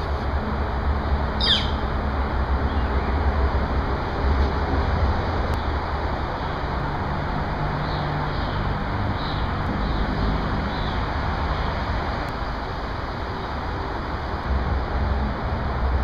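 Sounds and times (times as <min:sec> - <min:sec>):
bird downward-sweeping call: 0:01.4 - 0:01.8.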